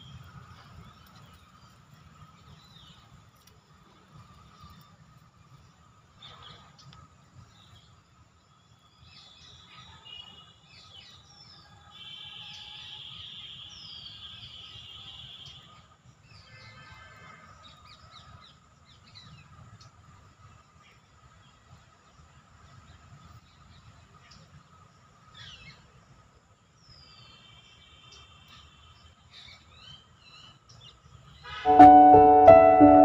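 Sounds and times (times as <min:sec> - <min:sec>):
faint steady high tone: 0:31.7 - 0:33.0.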